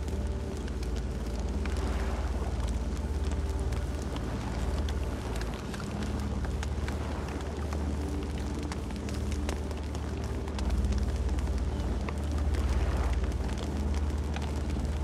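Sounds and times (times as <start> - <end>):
campfire crackling and popping: 0.0 - 15.0
low fire rumble: 0.0 - 15.0.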